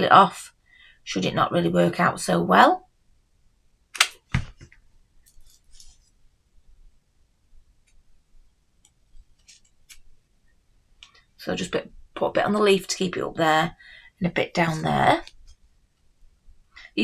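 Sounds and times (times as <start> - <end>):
sharp click and knock: 4.0 - 4.6.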